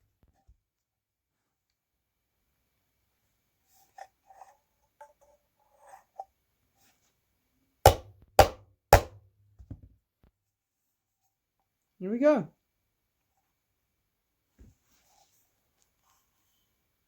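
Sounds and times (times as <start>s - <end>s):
loud knocks on motor parts: 7.9s - 9.8s.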